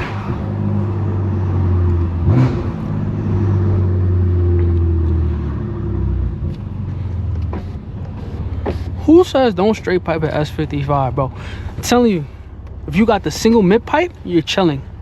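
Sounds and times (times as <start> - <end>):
car engine exhaust note: 0.0 - 15.0.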